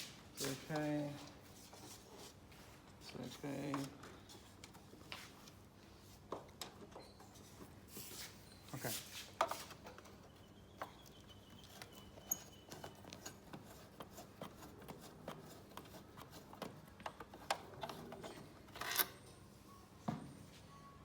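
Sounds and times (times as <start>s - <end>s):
hand tools clicking and scraping: 10.8s - 19.1s.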